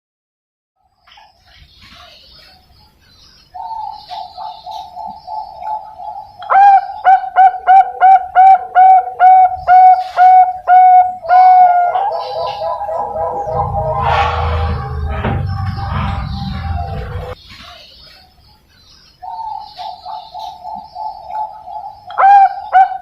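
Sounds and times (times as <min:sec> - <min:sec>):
dove cooing: 0:03.6 - 0:14.5, 0:19.3 - 0:23.0.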